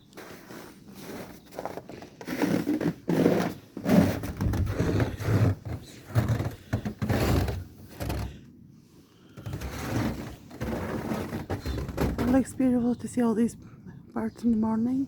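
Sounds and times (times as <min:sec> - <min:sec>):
footsteps crunching through snow: 0:00.0 - 0:08.2, 0:09.4 - 0:12.8.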